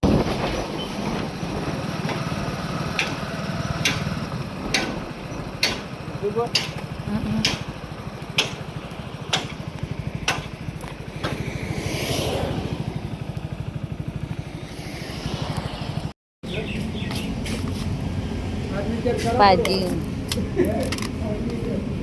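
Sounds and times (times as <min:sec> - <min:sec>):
small motorcycle engine running: 0:01.1 - 0:17.2
rush of noise: 0:10.9 - 0:16.2.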